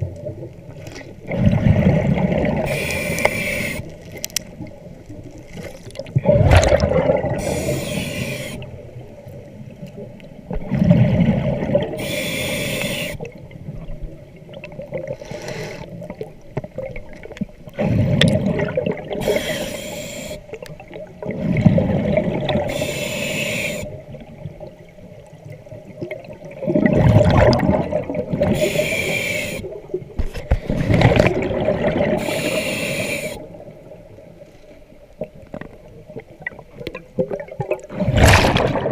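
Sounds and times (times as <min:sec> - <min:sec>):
exhaled bubbles gurgling underwater: 0:00.0 - 0:38.9
breathing regulator hissing: 0:02.7 - 0:03.9, 0:07.4 - 0:08.7, 0:12.0 - 0:13.2, 0:15.2 - 0:15.9, 0:19.2 - 0:20.5, 0:22.7 - 0:23.9, 0:28.6 - 0:29.7, 0:32.2 - 0:33.4.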